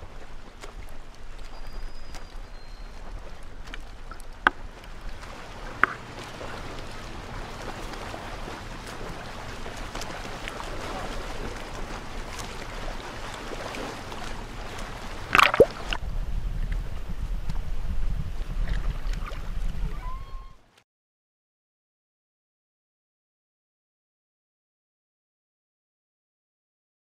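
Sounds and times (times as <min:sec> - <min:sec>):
water splash: 0:00.0 - 0:20.5
water sloshing and gurgling: 0:00.0 - 0:20.7
sharp knocks: 0:05.8 - 0:06.0.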